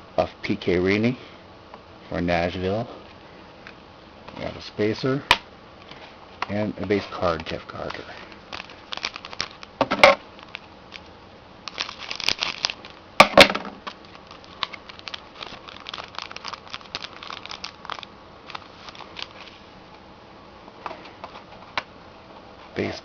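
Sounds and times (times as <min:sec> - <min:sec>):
cards crackling and clicking: 0:05.3 - 0:19.6
card pack wrapper tearing: 0:06.9 - 0:09.8, 0:10.4 - 0:13.0, 0:13.8 - 0:19.6.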